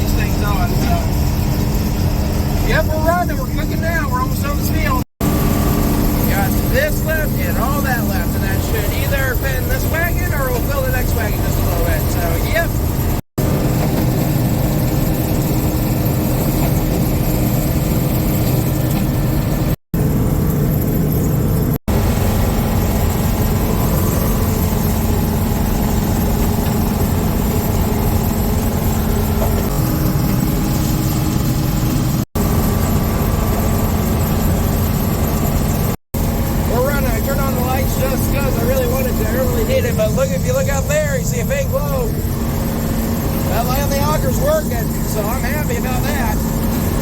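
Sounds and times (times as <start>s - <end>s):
combine harvester engine drone: 0.0s - 47.0s.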